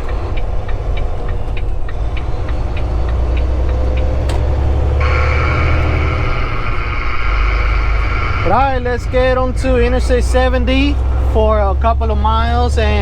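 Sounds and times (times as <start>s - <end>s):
turn signal clicking: 0.0s - 8.6s
diesel truck engine droning: 0.0s - 13.0s.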